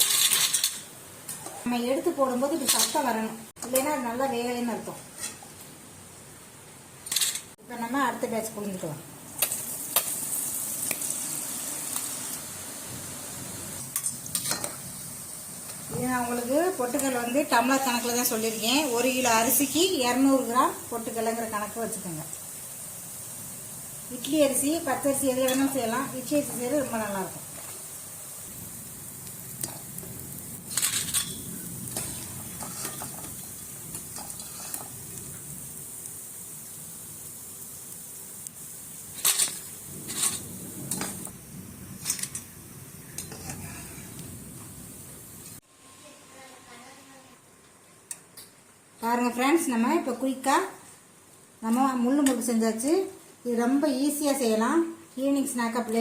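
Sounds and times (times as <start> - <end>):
utensil clinking and scraping in pan: 0.0 - 0.9, 13.8 - 14.9, 25.3 - 26.8, 30.6 - 35.0
hot oil sizzling: 0.0 - 56.0.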